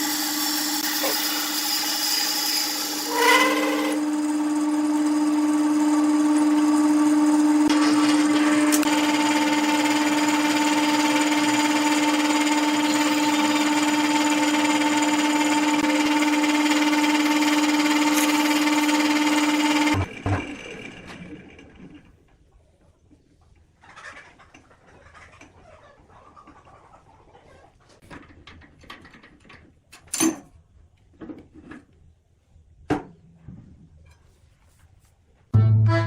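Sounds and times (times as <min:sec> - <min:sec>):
wood lathe humming: 0:00.0 - 0:22.0.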